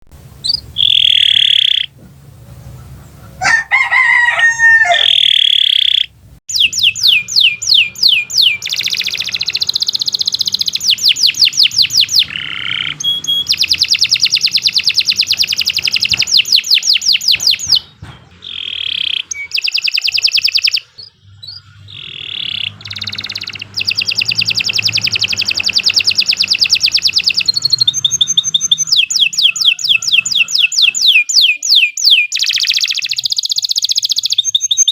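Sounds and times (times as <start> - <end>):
lower wavering bird call: 0.4 - 1.9, 2.8 - 9.6, 18.5 - 34.3
canary singing trills: 0.4 - 34.9.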